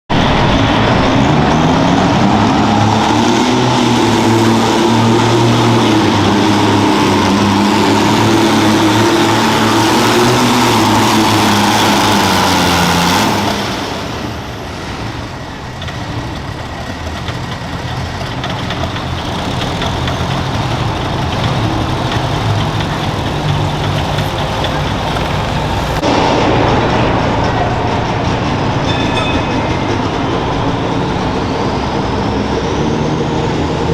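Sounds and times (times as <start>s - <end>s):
garden tractor engine under load: 0.1s - 26.4s.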